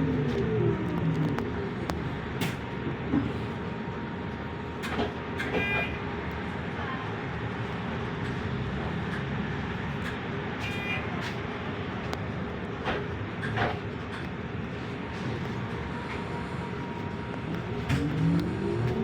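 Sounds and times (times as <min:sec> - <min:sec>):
electric bus running: 0:00.0 - 0:19.0.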